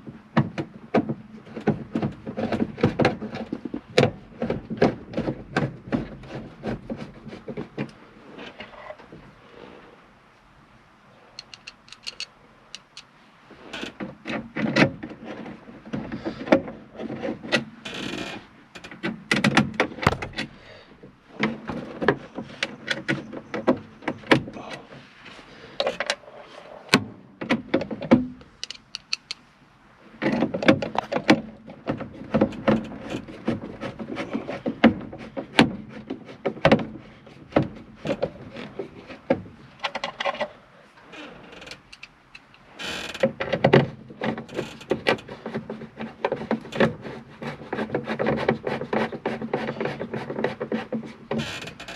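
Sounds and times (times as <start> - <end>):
clicks and knocks on plastic panel: 18.8 - 20.6, 30.2 - 40.5.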